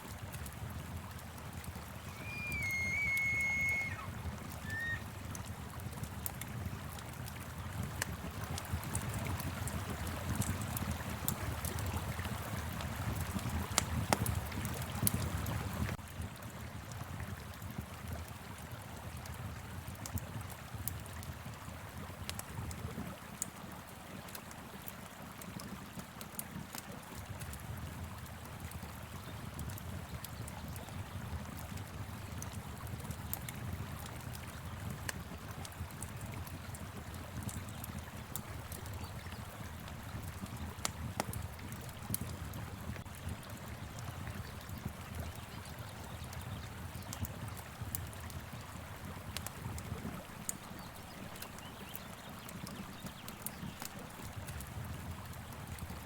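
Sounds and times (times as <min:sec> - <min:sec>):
river flowing: 0:00.0 - 0:17.6
wood fire crackling and popping: 0:00.0 - 0:56.0.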